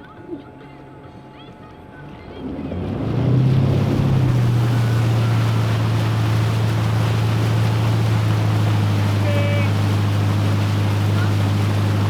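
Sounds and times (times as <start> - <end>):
motorboat engine: 0.0 - 12.0
wind and water rushing: 2.4 - 12.0.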